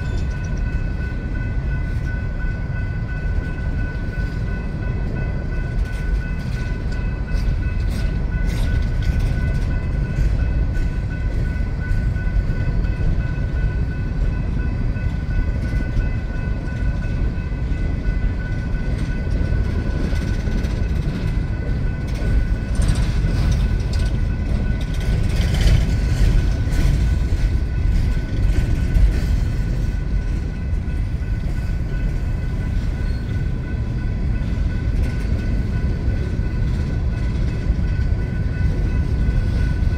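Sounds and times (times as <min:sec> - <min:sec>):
faint high ringing tone: 0:00.0 - 0:07.9, 0:30.0 - 0:34.9
train cars clanking: 0:00.0 - 0:39.9
train wheels rumbling on rail: 0:00.0 - 0:39.9.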